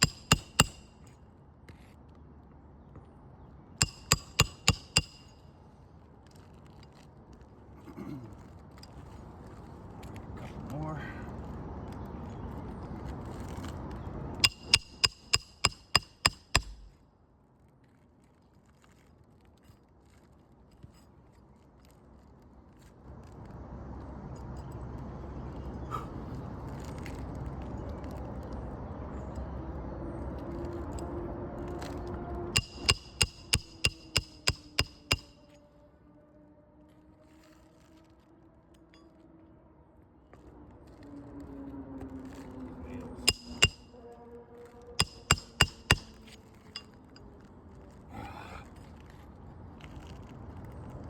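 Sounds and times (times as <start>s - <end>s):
hammer striking metal: 0.0s - 1.0s, 3.8s - 5.4s, 14.4s - 17.0s, 32.6s - 35.4s, 43.2s - 43.9s, 45.0s - 46.9s.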